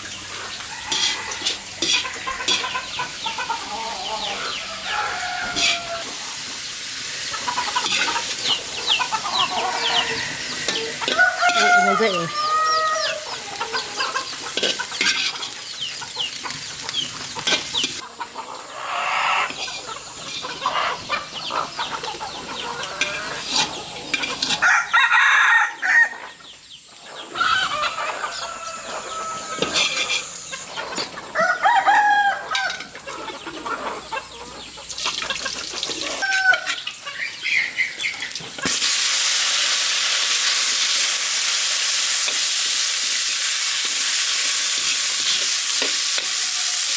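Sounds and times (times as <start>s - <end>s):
food sizzling in frying: 0.0s - 18.7s, 19.4s - 25.2s, 27.4s - 46.9s
chickens clucking: 0.0s - 38.8s
rooster crowing: 0.6s - 2.4s, 3.5s - 6.2s, 9.2s - 14.2s, 24.6s - 26.4s, 27.4s - 30.2s, 31.3s - 33.0s, 36.1s - 36.8s.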